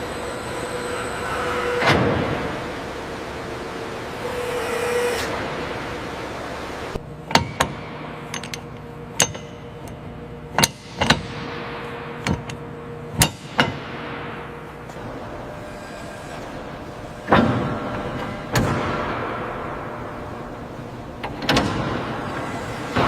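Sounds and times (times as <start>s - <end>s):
low steady hum: 14.2s - 23.0s
steady hiss: 14.9s - 23.0s.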